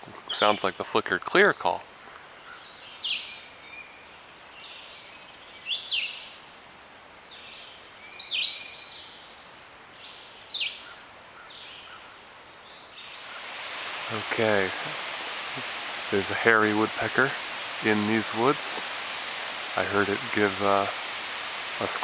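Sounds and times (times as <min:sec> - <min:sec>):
bird singing song phrases: 0:01.8 - 0:13.4.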